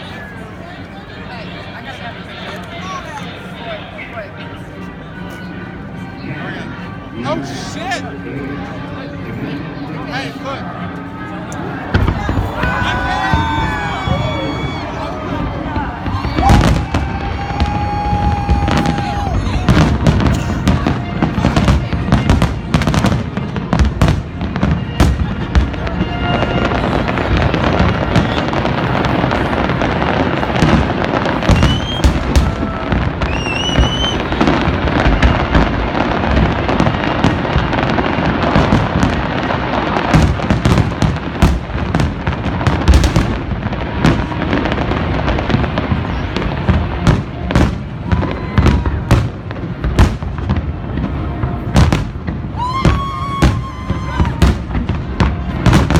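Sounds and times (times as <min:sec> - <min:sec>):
fireworks crackling: 0:11.1 - 0:55.9
rising firework whistles: 0:16.0 - 0:20.1, 0:30.1 - 0:36.5, 0:52.5 - 0:54.6.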